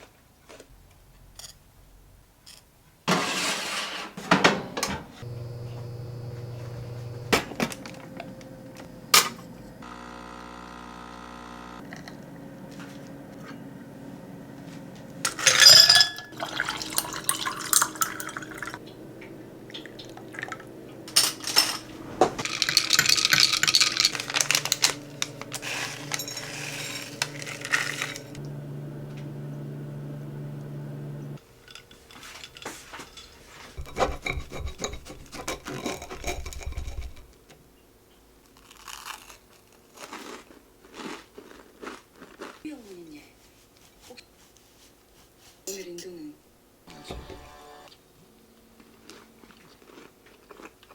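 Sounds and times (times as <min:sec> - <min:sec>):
dishes and containers clattering: 0:03.1 - 0:05.2, 0:15.3 - 0:28.4, 0:31.4 - 0:37.4
water rushing: 0:16.2 - 0:21.1.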